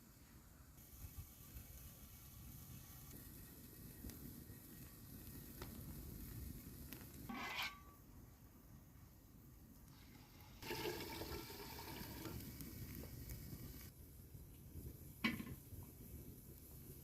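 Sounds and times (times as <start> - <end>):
water pouring: 10.0 - 13.9.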